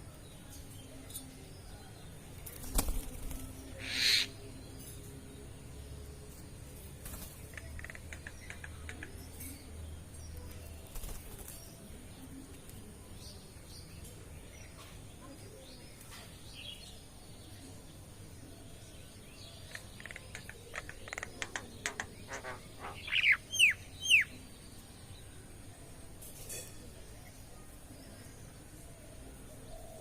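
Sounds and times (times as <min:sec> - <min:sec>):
loud downward-sliding bird calls: 0:03.8 - 0:04.3.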